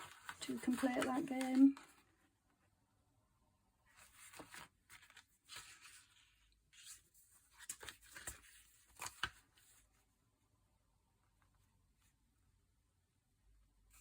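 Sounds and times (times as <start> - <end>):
paper rustling: 0.0 - 2.1, 3.9 - 9.9.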